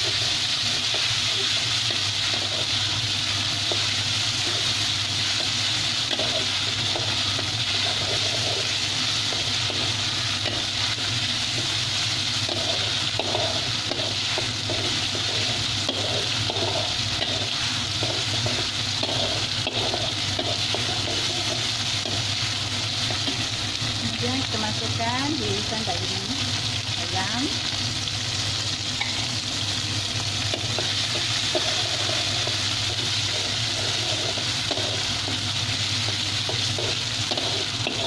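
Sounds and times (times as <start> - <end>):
food sizzling in hot oil: 0.0 - 38.0
spatula scraping a wok: 3.6 - 22.4, 30.5 - 38.0.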